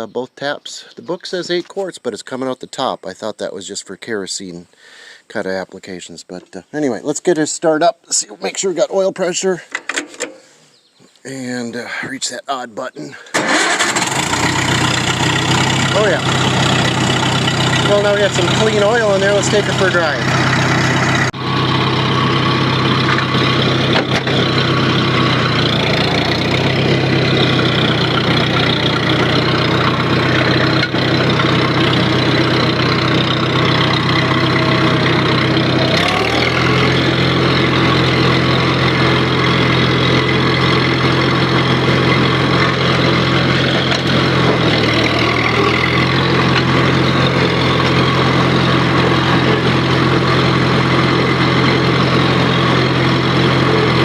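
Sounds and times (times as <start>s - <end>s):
tractor engine running: 13.3s - 54.0s.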